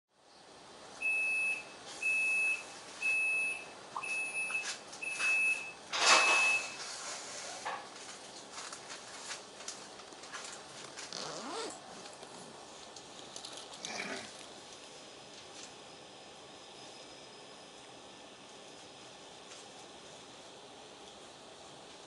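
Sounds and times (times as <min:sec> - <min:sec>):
high warning beeps: 0:01.0 - 0:06.8.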